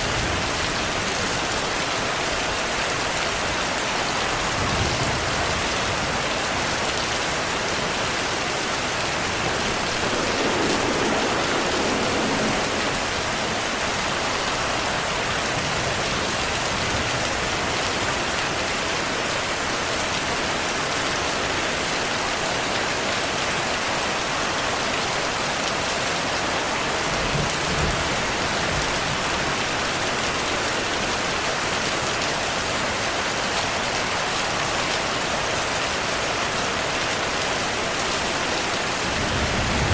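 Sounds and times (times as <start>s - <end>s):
heavy rainfall: 0.0s - 39.9s
low thunder rumbles: 7.6s - 17.5s, 39.0s - 39.9s.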